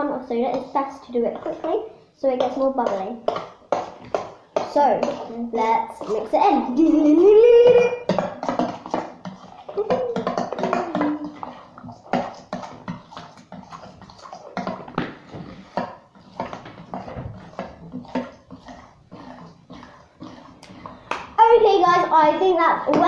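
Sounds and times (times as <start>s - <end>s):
spoon scraping and clicking in bowl: 8.1s - 15.0s.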